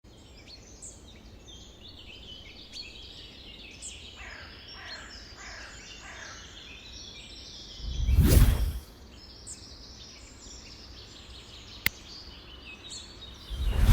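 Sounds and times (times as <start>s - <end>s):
loud low rush of noise: 13.5s - 13.9s.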